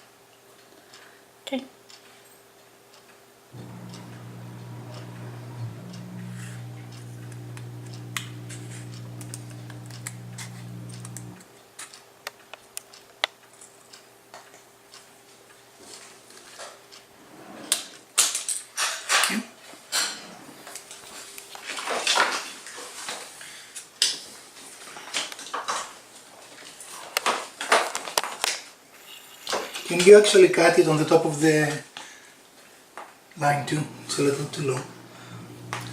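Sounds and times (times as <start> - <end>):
steady low hum: 3.6 - 11.4, 33.8 - 35.9.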